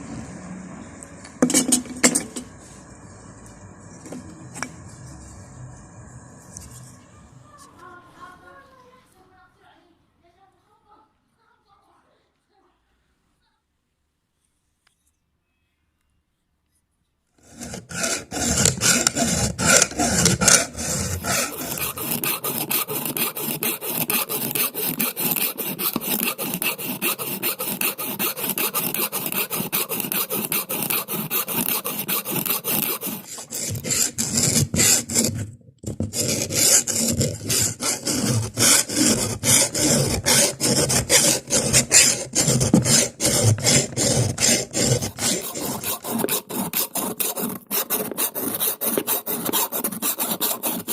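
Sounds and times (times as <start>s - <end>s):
file scraping metal: 0.9s - 7.1s, 17.4s - 50.9s.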